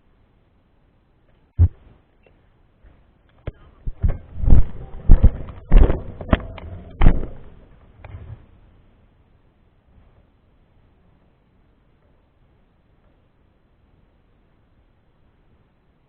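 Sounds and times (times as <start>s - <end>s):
irregular knocks and thumps: 1.6s - 1.9s, 2.8s - 8.4s.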